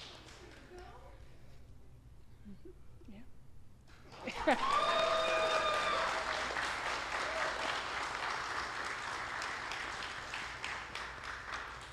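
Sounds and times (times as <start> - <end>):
people applauding: 0.0 - 0.9, 4.1 - 11.9.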